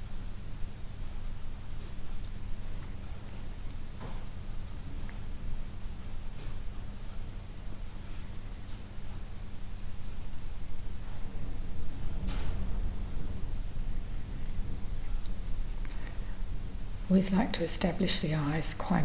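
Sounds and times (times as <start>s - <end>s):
steady low hum: 0.0s - 19.0s
pencil scratching on paper: 0.2s - 3.4s, 4.1s - 7.2s, 8.0s - 10.6s, 15.2s - 16.0s.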